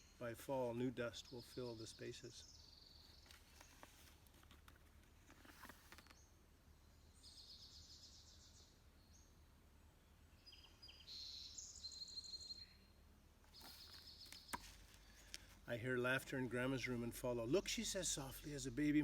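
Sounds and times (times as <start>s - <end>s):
low steady hum: 11.7s - 19.0s.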